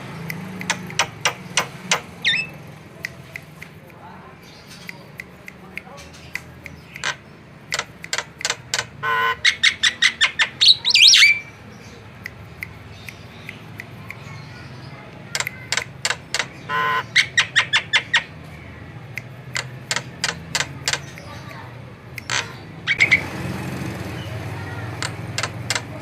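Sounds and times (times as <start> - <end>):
bird clicking and squawking: 0.0 - 26.0
bird whistled phrase: 9.1 - 11.5, 22.9 - 23.2.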